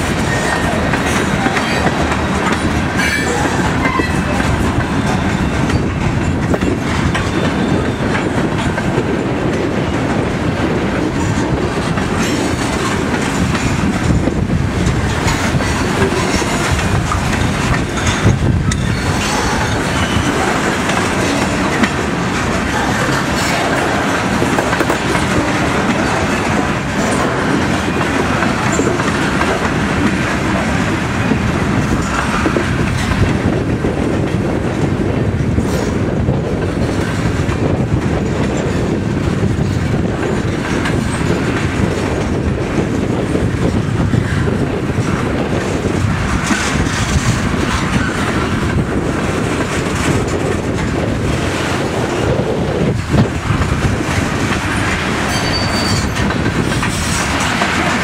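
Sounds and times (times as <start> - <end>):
steel wheels running on rails: 0.0 - 58.0.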